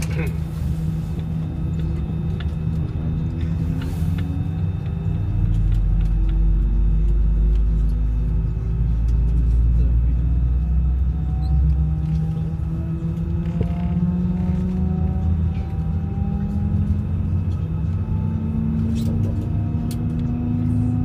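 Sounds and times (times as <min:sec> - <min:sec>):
jet engine rumble: 0:00.0 - 0:21.0
small clicks in cabin: 0:01.2 - 0:08.0.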